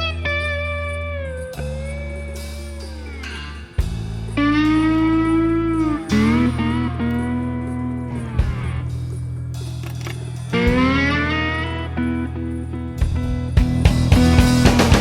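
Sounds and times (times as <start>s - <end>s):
slide guitar bending notes: 0.0s - 15.0s
steady bass: 0.0s - 15.0s.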